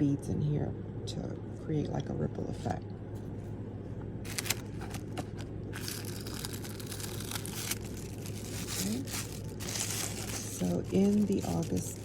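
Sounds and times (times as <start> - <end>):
steady low hum: 0.0 - 12.0
packaging crinkling: 4.3 - 12.0.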